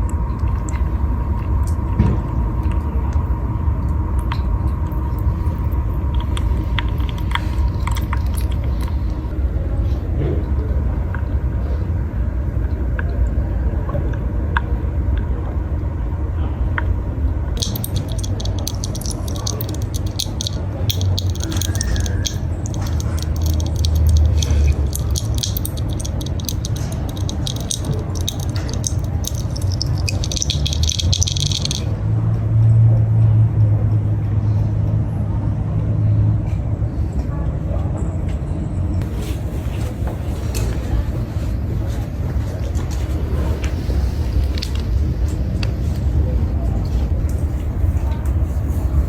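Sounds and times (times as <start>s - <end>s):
dense crackling and clicking: 17.6s - 31.9s.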